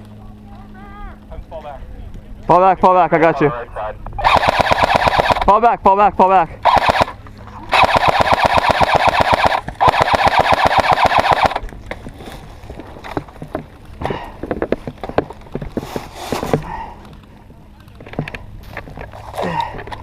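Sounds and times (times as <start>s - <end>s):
airsoft gun firing bursts: 4.2s - 5.5s, 6.6s - 11.6s.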